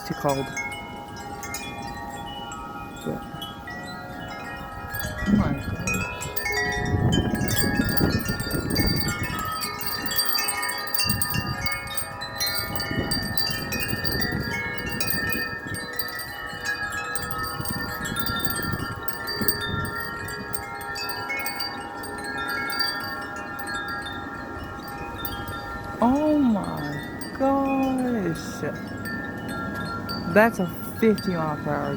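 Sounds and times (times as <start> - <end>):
wind chimes ringing: 0.0 - 31.9
wind gusts on microphone: 0.0 - 31.9.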